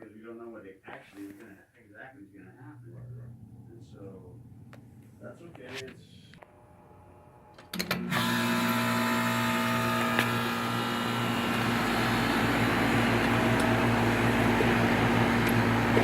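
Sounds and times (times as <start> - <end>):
compressor humming: 2.6 - 16.0
fan air noise: 10.6 - 16.0.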